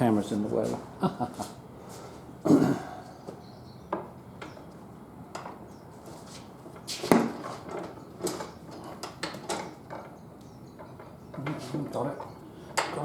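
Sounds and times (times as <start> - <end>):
metal tools clanking on wheel rim: 5.3 - 13.0.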